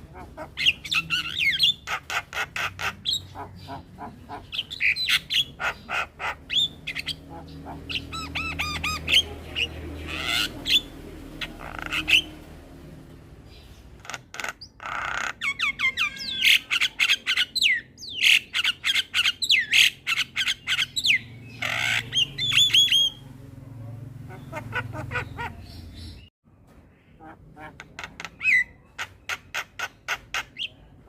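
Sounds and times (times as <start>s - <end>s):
bird rasping call: 0.0s - 12.5s.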